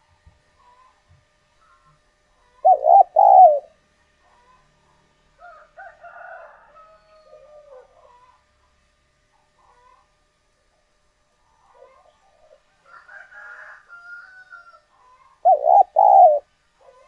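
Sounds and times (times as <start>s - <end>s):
dove cooing: 2.5s - 3.8s, 15.2s - 17.0s.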